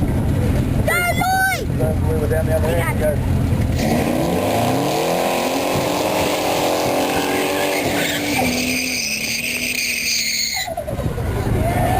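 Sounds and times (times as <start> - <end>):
car engine revving: 1.8 - 10.4
tyre squeal: 7.1 - 10.8.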